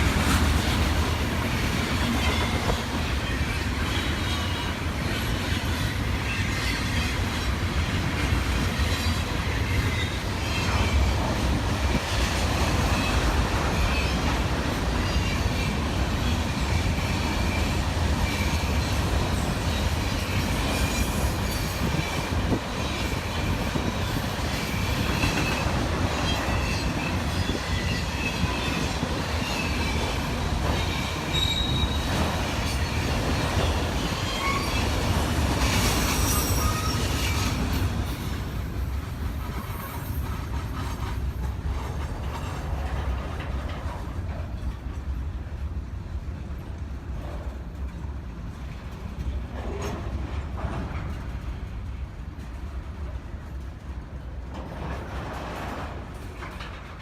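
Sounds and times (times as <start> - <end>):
freight train rumbling: 0.0 - 57.0
high-pitched wheel squeal: 31.3 - 32.1, 36.0 - 37.6.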